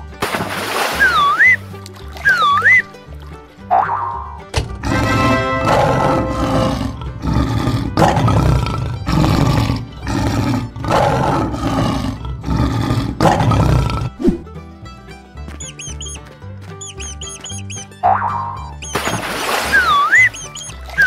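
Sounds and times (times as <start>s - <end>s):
lion roaring: 4.8s - 14.2s.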